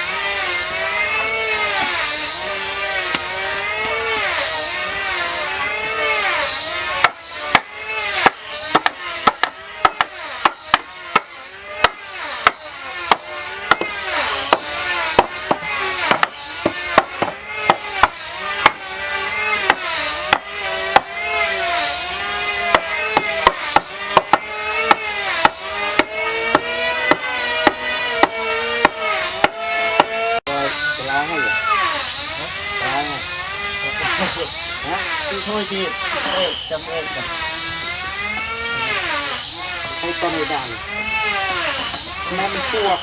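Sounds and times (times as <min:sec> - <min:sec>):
tool knocking on wood: 0:07.0 - 0:18.8, 0:22.7 - 0:30.2.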